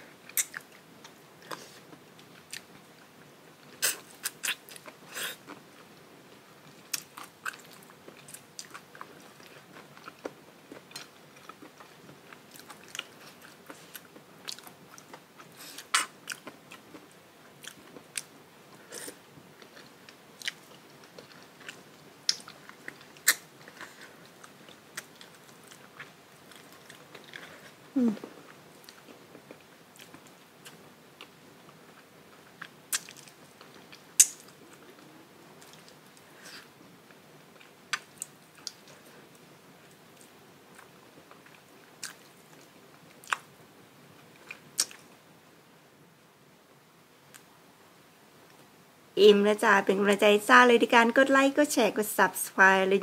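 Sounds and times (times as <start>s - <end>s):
chewing with sharp crunches: 6.7s - 27.8s, 28.5s - 39.1s, 39.9s - 43.5s, 44.4s - 45.1s
mouth clicks: 34.2s - 34.5s.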